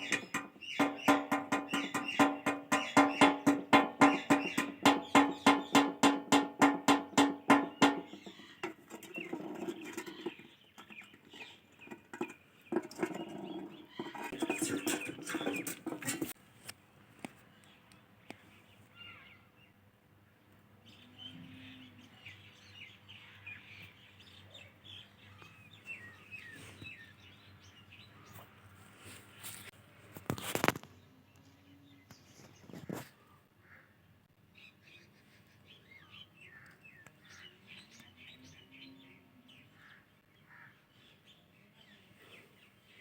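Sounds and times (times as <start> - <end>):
parakeet chirping and chattering: 0.0 - 5.8.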